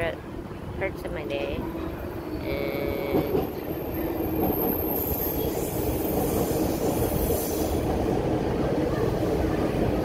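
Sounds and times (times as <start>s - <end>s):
train rumbling overhead: 0.0s - 10.0s.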